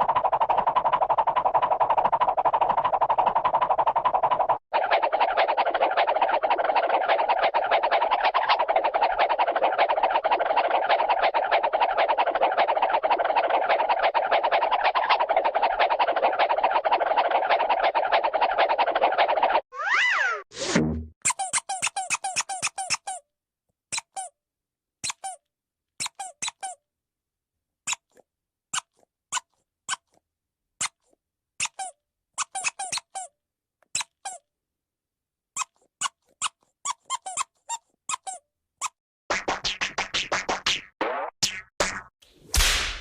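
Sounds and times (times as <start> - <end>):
cartoon squeaks: 19.8 - 23.2, 23.9 - 24.4, 25.0 - 26.8, 27.9 - 30.2, 31.6 - 34.5, 35.6 - 39.0.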